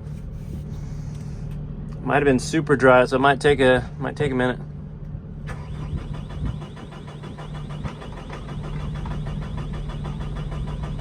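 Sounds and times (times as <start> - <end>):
diesel engine cranking: 5.4 - 11.0.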